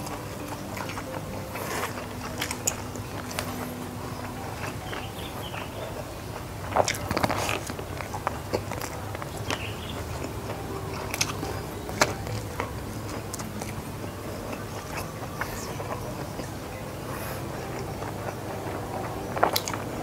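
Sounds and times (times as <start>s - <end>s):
person chewing food: 0.0s - 20.0s
steady low hum: 0.0s - 20.0s.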